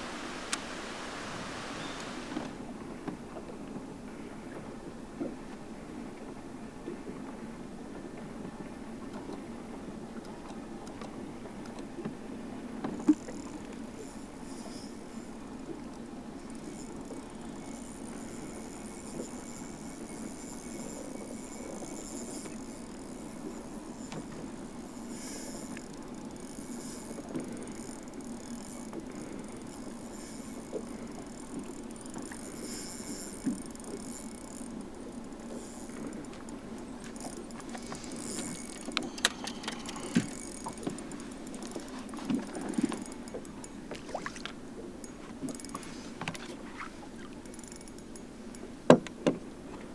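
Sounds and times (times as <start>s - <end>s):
rush of wind and water: 0.0s - 49.9s
fishing tackle knocks and clicks: 12.8s - 46.7s, 47.3s - 49.4s.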